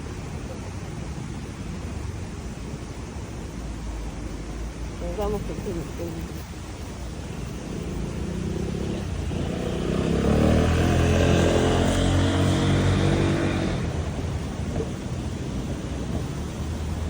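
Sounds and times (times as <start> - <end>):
distant traffic: 0.0 - 17.0
vehicle passing by: 7.1 - 17.0.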